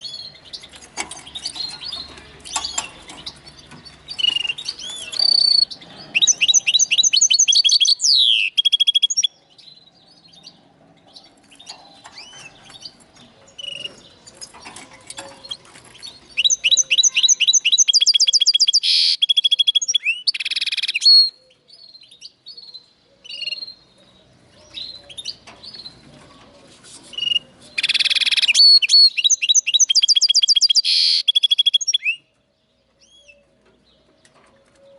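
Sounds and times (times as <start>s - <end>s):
bird twittering: 4.1s - 9.4s, 16.4s - 21.4s, 27.2s - 32.3s.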